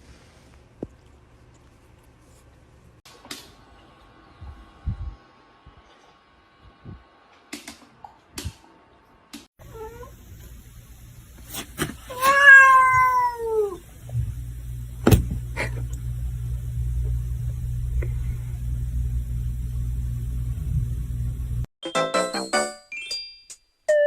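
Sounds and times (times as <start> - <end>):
cat meowing: 12.1 - 13.8
steady low hum: 13.8 - 21.7.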